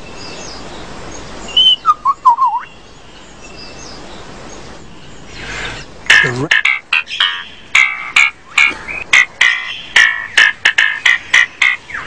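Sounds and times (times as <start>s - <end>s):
distant bird calls: 0.0s - 12.0s
lyrebird whistling: 1.5s - 2.7s, 5.4s - 12.0s.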